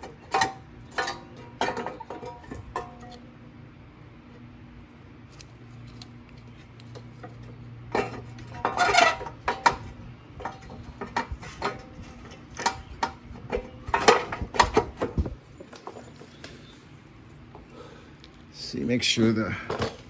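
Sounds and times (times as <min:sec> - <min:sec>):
metallic clicks and clatters: 0:06.8 - 0:16.6.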